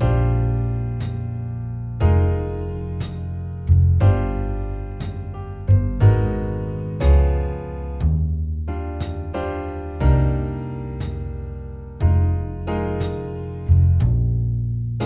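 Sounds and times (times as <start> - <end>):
jazz piano chords: 0.0 - 15.0
low bass notes: 0.0 - 15.0.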